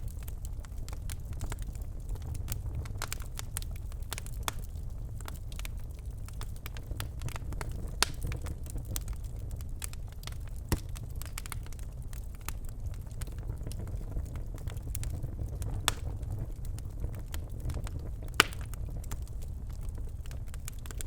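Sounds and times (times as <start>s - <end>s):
fire crackling in a fireplace: 0.0s - 21.0s
sharp pops and snaps: 18.3s - 18.8s.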